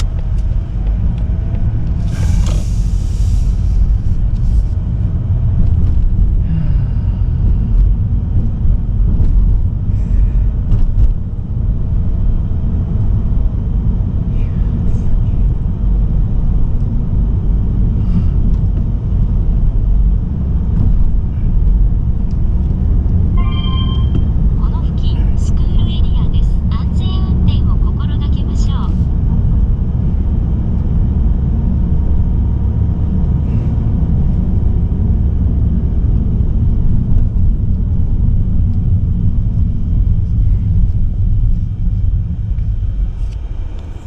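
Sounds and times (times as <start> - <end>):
car rumbling on the move: 0.0 - 44.0
brief hiss: 2.0 - 3.8.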